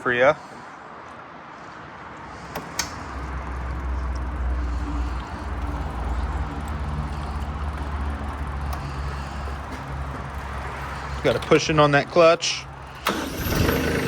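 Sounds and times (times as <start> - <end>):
sharp clicks: 2.5 - 3.0
tractor engine running: 2.5 - 14.0.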